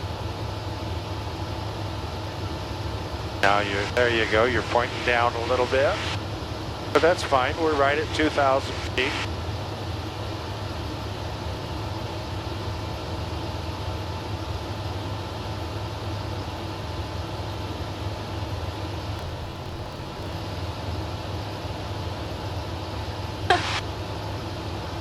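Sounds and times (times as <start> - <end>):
aircraft engine and propeller drone: 19.2 - 20.5.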